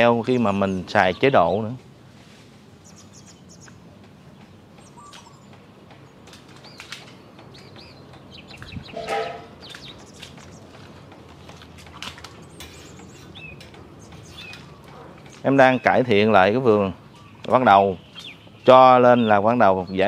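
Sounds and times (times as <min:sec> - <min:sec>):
small birds chirping: 0:00.0 - 0:20.0
loud bird call: 0:04.8 - 0:05.6, 0:07.6 - 0:10.2.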